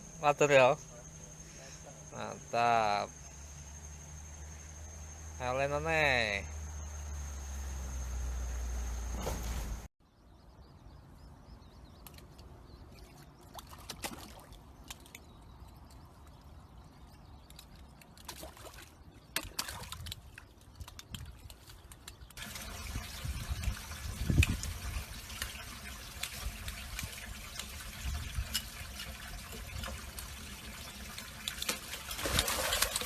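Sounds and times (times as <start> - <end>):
water splashing and trickling: 11.9 - 33.0
water rushing: 22.4 - 33.0.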